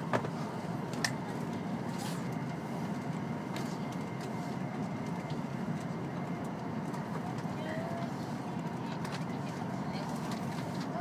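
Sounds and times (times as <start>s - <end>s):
train cabin low rumble: 0.0s - 11.0s.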